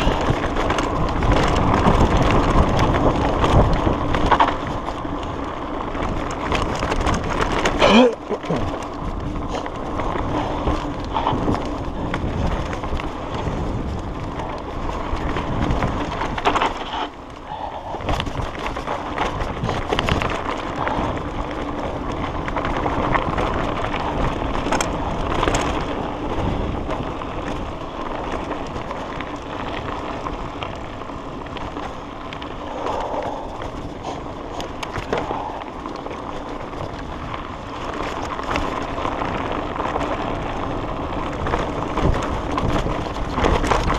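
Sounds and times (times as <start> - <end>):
bike rattling over bumps: 0.0 - 43.9
bike tyres rolling on dirt: 0.0 - 43.9.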